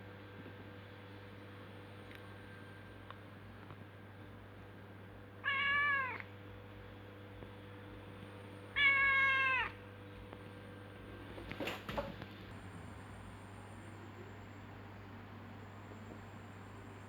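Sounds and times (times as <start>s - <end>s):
cat meowing: 5.4s - 6.3s, 8.7s - 9.8s.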